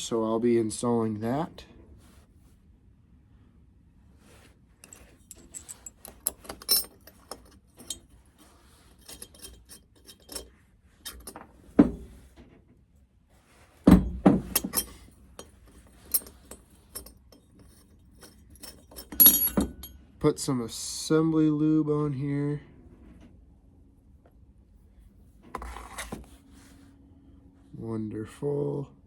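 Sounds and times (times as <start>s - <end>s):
metal engine parts clinking: 4.8s - 12.2s, 13.9s - 20.0s.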